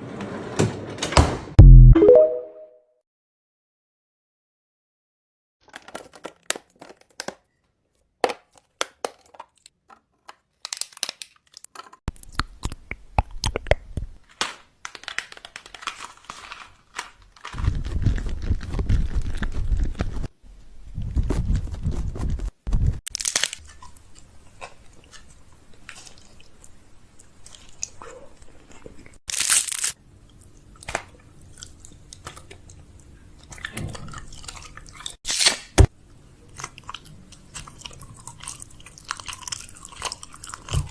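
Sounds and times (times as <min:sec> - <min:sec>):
snack packets crinkling: 0:05.6 - 0:20.3, 0:23.1 - 0:26.7, 0:29.3 - 0:30.0, 0:36.5 - 0:40.9.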